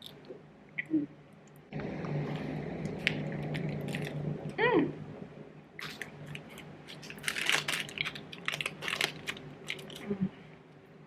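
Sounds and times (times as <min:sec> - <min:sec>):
crackling clicks of eating: 0:02.8 - 0:04.2, 0:05.8 - 0:10.2
plastic wrapper crinkling: 0:02.9 - 0:04.2, 0:05.8 - 0:10.2.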